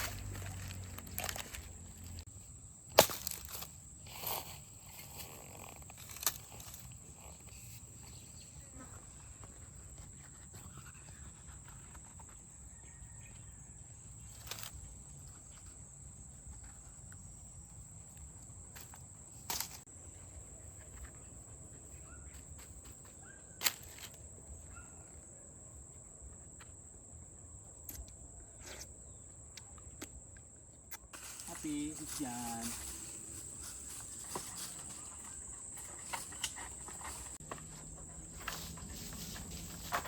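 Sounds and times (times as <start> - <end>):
insect drone: 0.0 - 20.0, 30.6 - 40.0.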